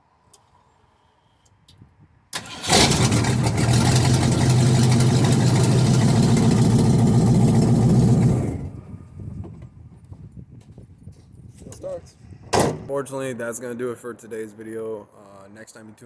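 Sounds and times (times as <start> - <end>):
engine cranking: 2.4 - 8.7
engine running loud and raw: 2.4 - 8.8.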